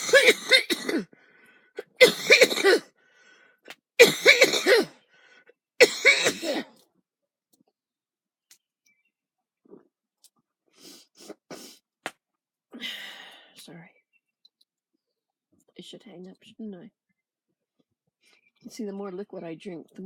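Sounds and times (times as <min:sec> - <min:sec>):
woman coughing: 0:00.0 - 0:01.1, 0:01.8 - 0:02.9, 0:04.0 - 0:04.9, 0:05.8 - 0:06.7.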